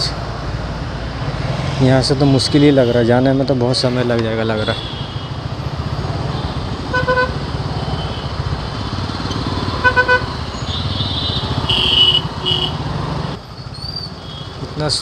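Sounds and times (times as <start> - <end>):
road traffic: 0.0 - 15.0
vehicle horns honking: 3.9 - 5.5, 6.2 - 8.4, 9.7 - 12.8.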